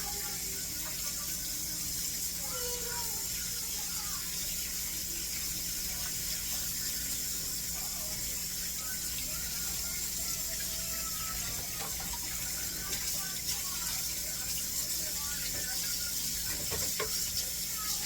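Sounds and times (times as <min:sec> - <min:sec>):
tap water running: 0:00.0 - 0:18.0.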